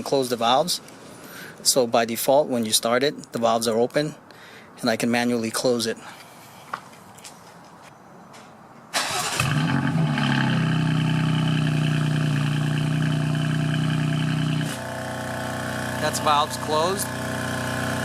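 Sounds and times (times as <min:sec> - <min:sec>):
car engine starting and idling: 0:09.0 - 0:18.0.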